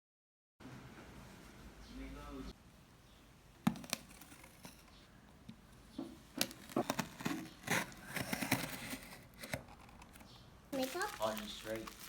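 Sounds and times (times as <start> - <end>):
packaging rustling and crinkling: 10.8 - 12.0
packaging tearing: 10.8 - 12.0.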